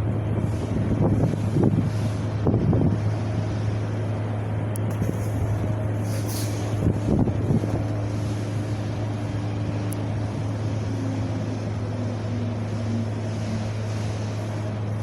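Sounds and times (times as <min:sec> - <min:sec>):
wind buffeting microphone: 0:00.0 - 0:13.3
wind blowing: 0:04.6 - 0:10.8.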